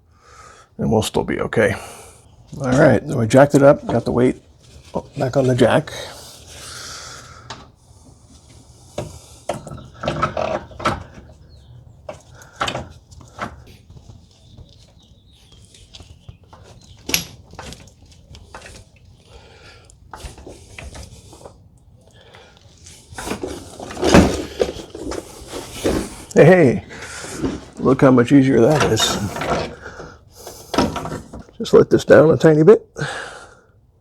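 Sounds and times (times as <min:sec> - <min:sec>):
metal knocks and clunks: 0:09.0 - 0:13.8, 0:23.2 - 0:31.6.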